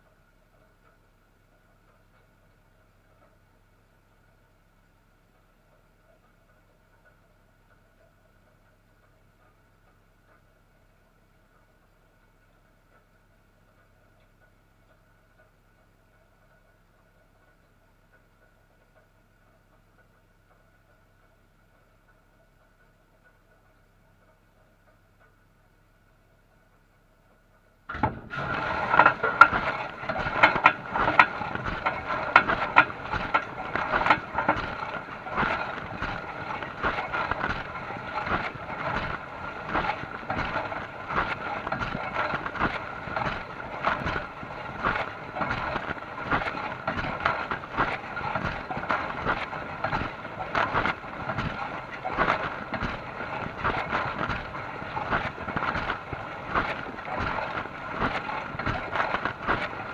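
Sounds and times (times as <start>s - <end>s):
dishwasher washing: 27.9s - 59.9s.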